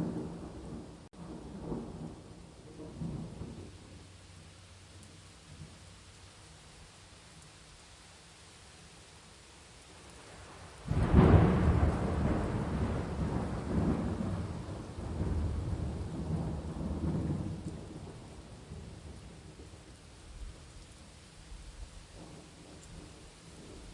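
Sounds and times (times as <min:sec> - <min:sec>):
rolling thunder: 0:00.0 - 0:03.8, 0:10.9 - 0:19.8
rain hiss: 0:00.0 - 0:23.9.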